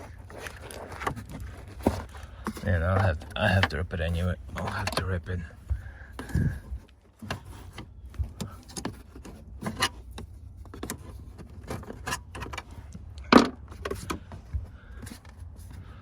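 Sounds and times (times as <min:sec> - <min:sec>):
part torn loose clicks and knocks: 0:07.2 - 0:14.3.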